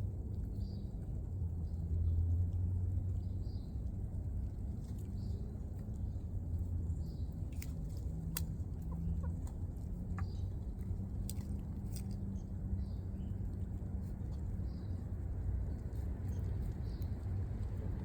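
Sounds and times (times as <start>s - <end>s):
chickens clucking: 8.6s - 10.4s.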